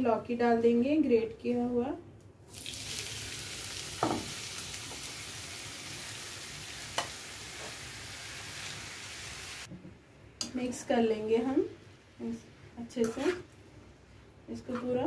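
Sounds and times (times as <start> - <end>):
food sizzling in hot fat: 2.5 - 9.7.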